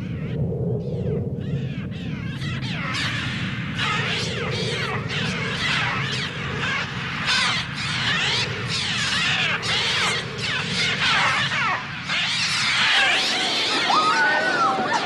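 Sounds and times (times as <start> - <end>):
synthesized bird shrieks: 1.4 - 15.0.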